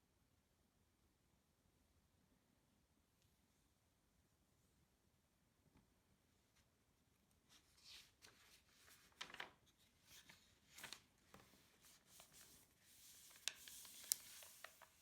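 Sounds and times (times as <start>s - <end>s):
paper rustling: 7.5s - 15.0s.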